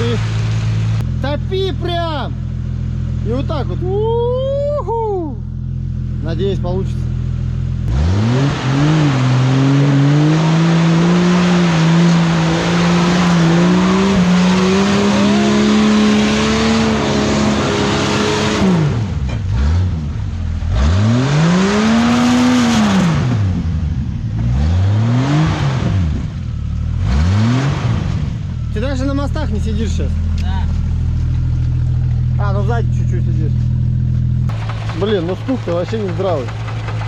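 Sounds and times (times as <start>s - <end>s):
car engine revving hard: 7.8s - 28.4s.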